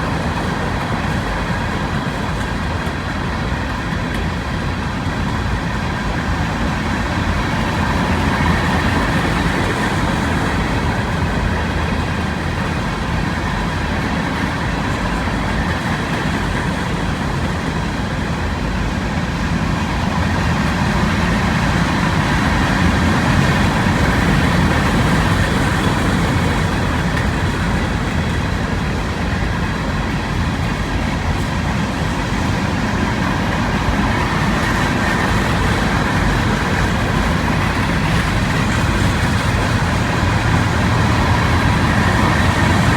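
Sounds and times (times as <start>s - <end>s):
train wheels on rails: 0.0s - 42.9s.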